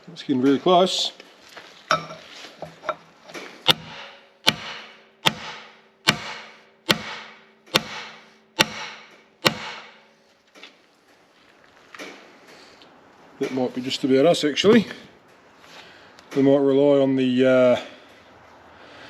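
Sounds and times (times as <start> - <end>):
hammer striking metal: 3.7 - 10.2.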